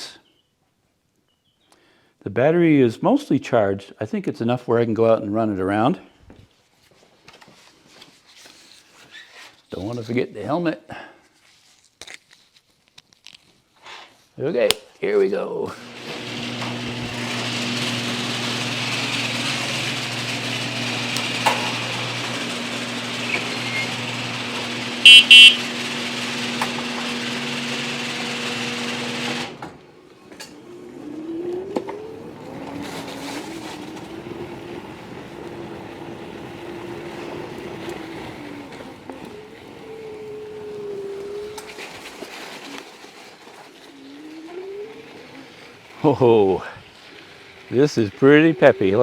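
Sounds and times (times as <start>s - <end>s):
electric bike motor whine: 15.8s - 29.6s
two-part electronic tone: 25.0s - 25.6s.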